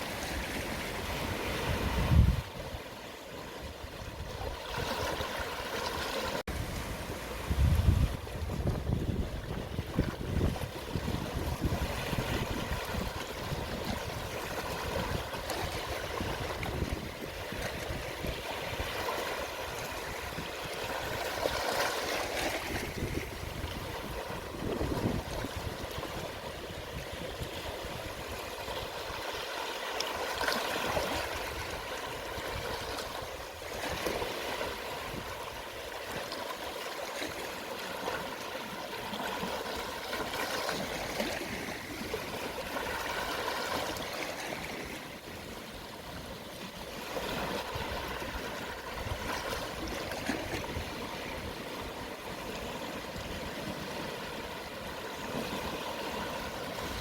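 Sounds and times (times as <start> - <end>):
sea waves lapping on shore: 0.0 - 57.0.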